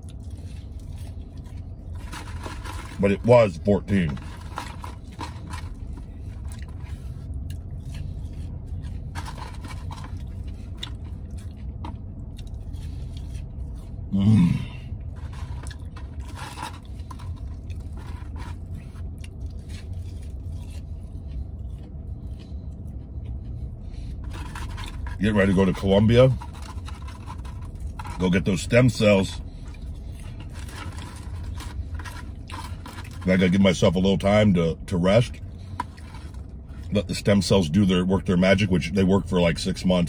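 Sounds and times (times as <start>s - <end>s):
person chewing crispy food: 0.0s - 3.0s, 3.8s - 28.6s, 29.2s - 33.3s
takeout tray scrapes and clicks: 1.5s - 7.2s, 7.9s - 11.1s, 15.1s - 20.2s, 24.1s - 33.8s, 35.6s - 36.5s.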